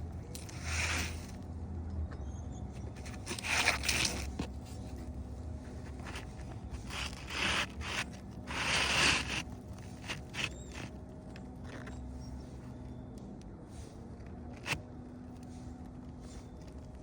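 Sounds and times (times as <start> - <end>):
scraping and rustling: 0.3 - 1.4, 2.8 - 11.0.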